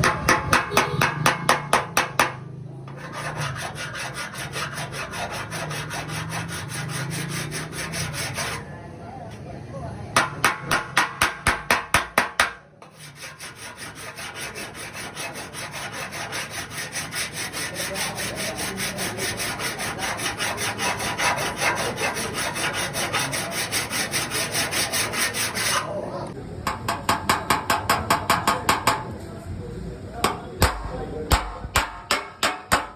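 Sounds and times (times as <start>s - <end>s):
hand tool striking car body panel: 0.0s - 2.4s, 10.2s - 12.6s, 26.7s - 29.0s, 30.2s - 32.9s.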